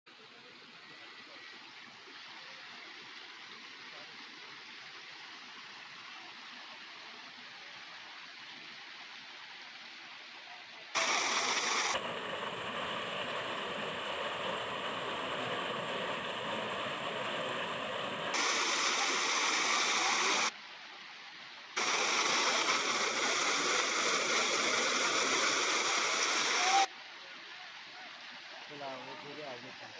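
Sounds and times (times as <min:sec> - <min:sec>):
waterfall rushing: 0:11.0 - 0:20.5, 0:21.8 - 0:26.9.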